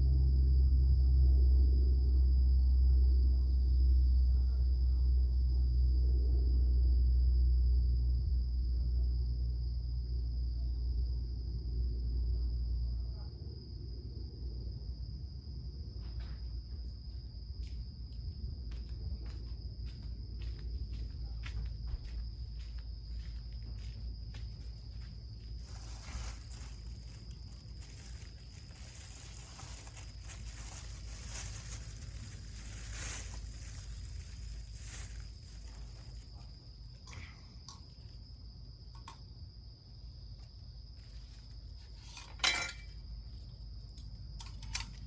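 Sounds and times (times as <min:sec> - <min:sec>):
insects trilling: 0:00.0 - 0:45.0.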